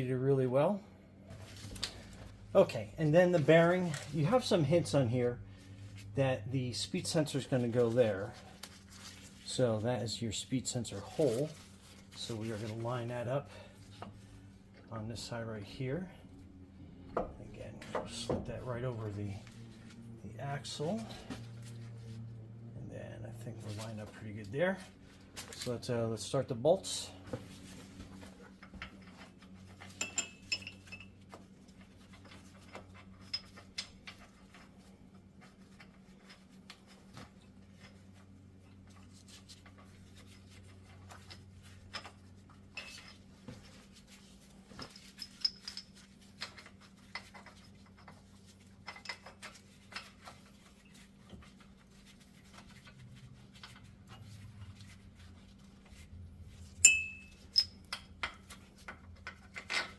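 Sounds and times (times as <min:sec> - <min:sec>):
faint low hum: 0:00.0 - 0:59.9
metallic clinks of bolts and tools: 0:29.8 - 0:31.1, 0:44.8 - 0:47.2, 0:56.8 - 0:58.4.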